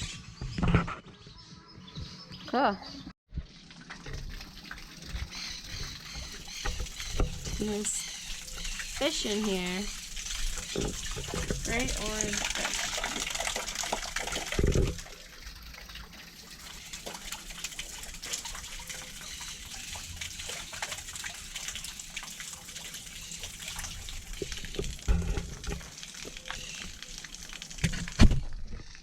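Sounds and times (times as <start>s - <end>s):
water splashing: 3.4s - 29.0s
small birds chirping: 5.2s - 10.9s
low thumps: 25.0s - 25.9s.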